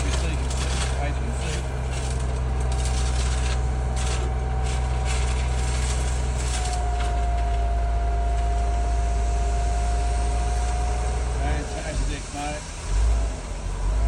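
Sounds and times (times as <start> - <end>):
crunching and rattling: 0.0 - 7.8
excavator diesel engine droning: 0.0 - 14.0.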